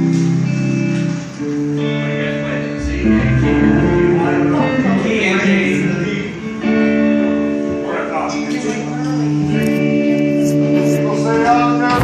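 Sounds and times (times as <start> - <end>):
country guitar music: 0.0 - 12.0
deep bass note: 2.8 - 5.3.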